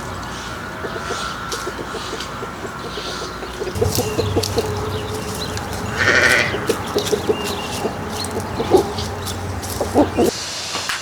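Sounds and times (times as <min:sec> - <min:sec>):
farm animal bleating: 0:03.8 - 0:10.3
steady low hum: 0:03.8 - 0:10.3.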